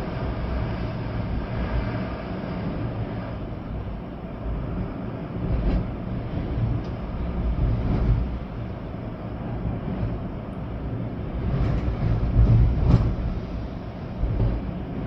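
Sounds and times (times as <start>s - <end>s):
rain: 0.0s - 15.0s
storm wind gusting: 0.0s - 15.0s.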